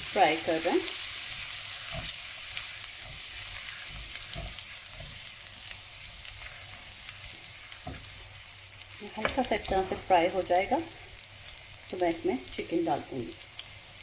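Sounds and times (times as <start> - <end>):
food sizzling in hot oil: 0.0 - 14.0
spatula knocking against pan: 9.2 - 10.1.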